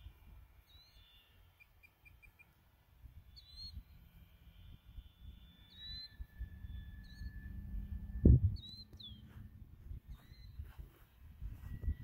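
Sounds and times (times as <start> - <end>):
bird chirping: 0.6 - 2.6, 3.2 - 12.0
low microphone rumble: 6.2 - 12.0.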